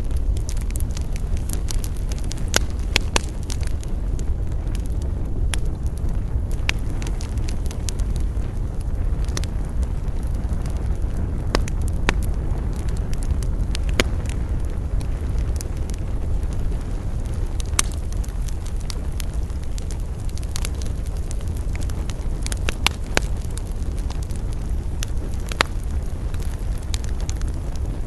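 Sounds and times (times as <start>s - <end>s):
low rumble: 0.0s - 28.0s
wood fire crackling: 0.0s - 28.0s.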